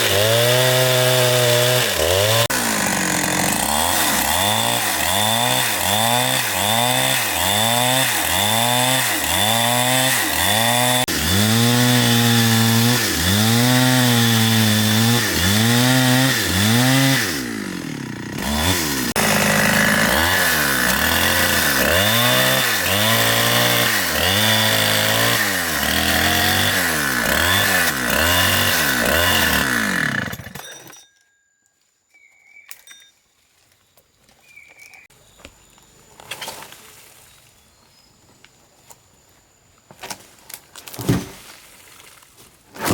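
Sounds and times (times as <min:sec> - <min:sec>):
chainsaw cutting wood: 0:00.0 - 0:31.0.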